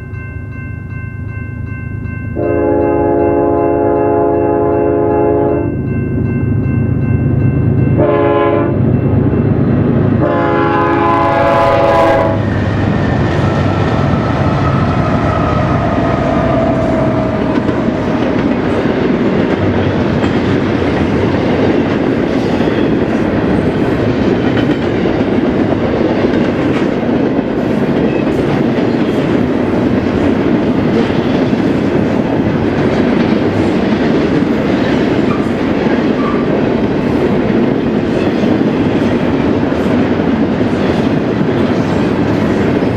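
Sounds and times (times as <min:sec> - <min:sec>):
train rumbling past: 0:00.0 - 0:42.9
locomotive air horn blast: 0:02.4 - 0:05.7, 0:08.0 - 0:08.8, 0:10.2 - 0:12.4.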